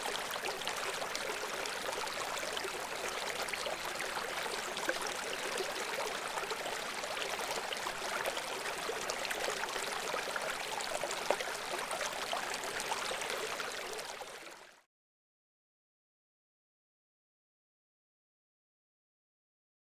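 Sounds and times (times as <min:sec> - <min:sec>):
brook water flowing and splashing: 0:00.0 - 0:14.8.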